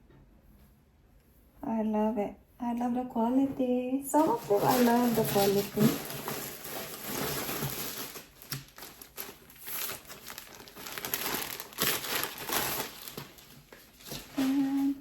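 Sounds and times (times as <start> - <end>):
plastic bags crinkling: 4.1 - 15.0.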